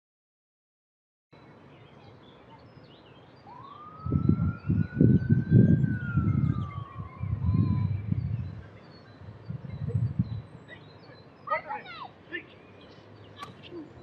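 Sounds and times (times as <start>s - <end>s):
faint birds chirping: 1.3s - 14.0s
siren-like wail: 3.4s - 8.7s
low rumbling: 3.8s - 10.7s.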